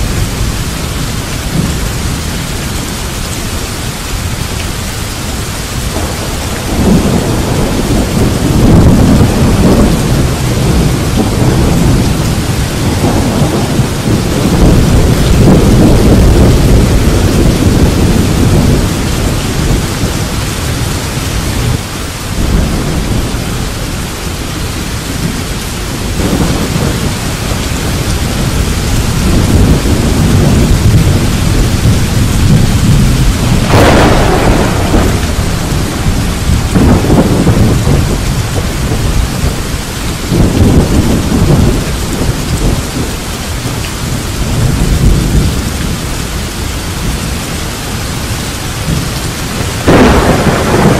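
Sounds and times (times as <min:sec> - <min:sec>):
steady rain: 0:00.0 - 0:50.9
thunder rumbling: 0:00.0 - 0:50.9
sharp thunder clap: 0:06.0 - 0:19.0, 0:29.2 - 0:39.6, 0:40.3 - 0:42.8, 0:49.8 - 0:50.9.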